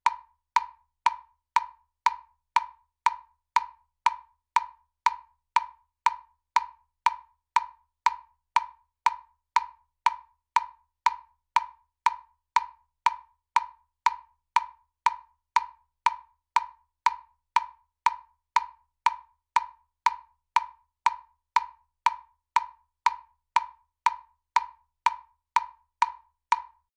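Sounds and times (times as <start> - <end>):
metronome clicking: 0.0 - 26.9.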